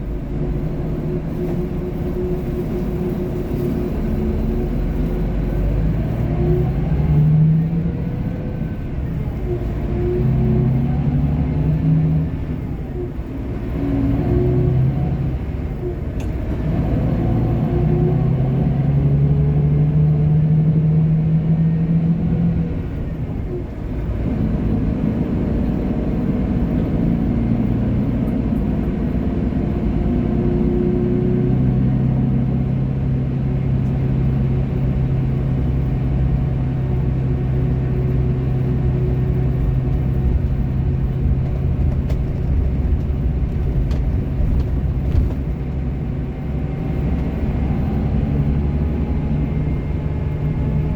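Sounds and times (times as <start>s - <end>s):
road rumble: 0.0s - 50.9s
vehicle engine humming: 0.0s - 50.9s.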